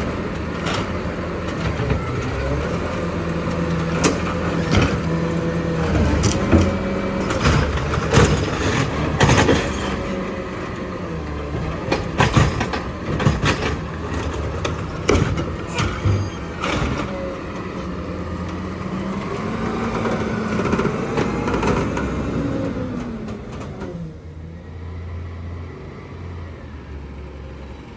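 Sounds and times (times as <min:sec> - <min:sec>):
garbage truck engine running: 0:00.0 - 0:24.8
metal clanks and knocks: 0:05.9 - 0:10.3, 0:11.8 - 0:17.6.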